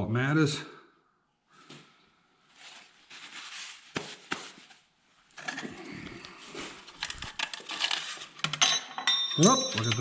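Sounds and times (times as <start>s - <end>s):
rustling and small clicks: 6.7s - 8.7s.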